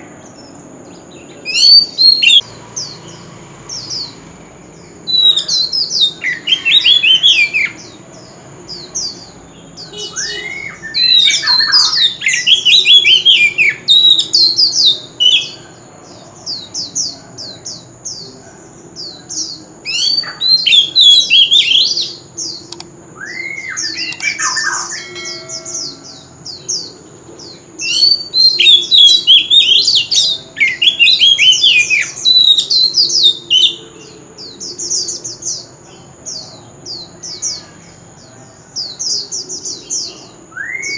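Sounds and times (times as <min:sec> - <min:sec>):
bird singing whistled phrases: 0:01.4 - 0:02.4, 0:05.0 - 0:07.9, 0:09.8 - 0:15.6, 0:19.9 - 0:26.2, 0:27.8 - 0:34.6, 0:39.8 - 0:40.9.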